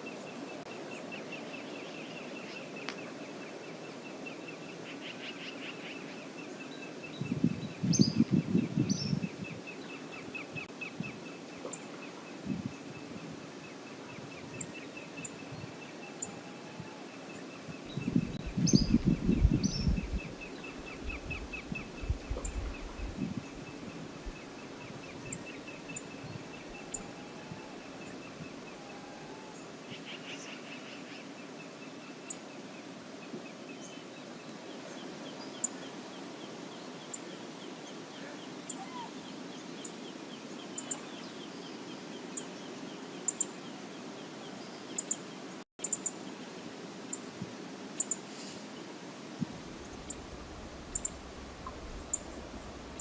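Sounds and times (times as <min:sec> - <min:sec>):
birds trilling and chipping: 0:34.8 - 0:41.5, 0:49.6 - 0:53.0
river water rushing: 0:46.2 - 0:53.0.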